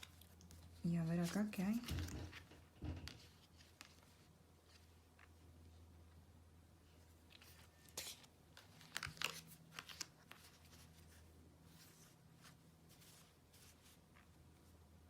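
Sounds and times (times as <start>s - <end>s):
cards rustling and snapping: 0.0s - 5.4s, 7.2s - 11.2s.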